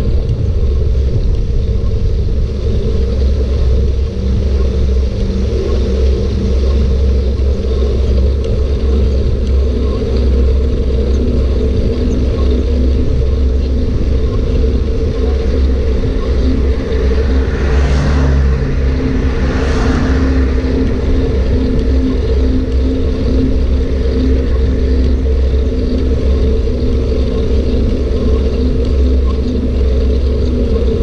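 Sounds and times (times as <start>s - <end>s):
bike rolling noise: 0.0s - 31.0s
wind rushing: 14.6s - 24.2s.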